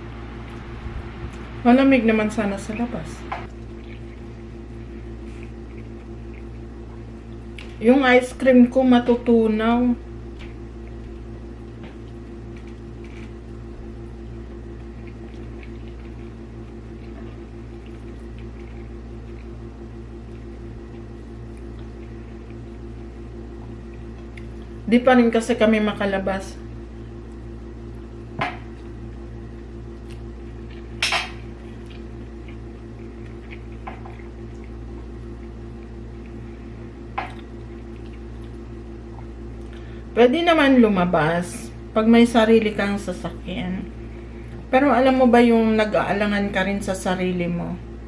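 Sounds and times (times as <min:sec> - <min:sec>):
pulsing mechanical hum: 0:00.0 - 0:48.0
eating clicks and smacks: 0:30.0 - 0:30.9, 0:37.2 - 0:39.8.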